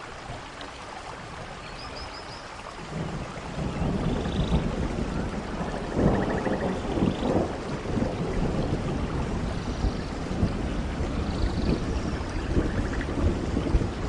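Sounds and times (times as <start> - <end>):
steady rain: 0.0 - 14.0
rumble of thunder: 2.8 - 14.0.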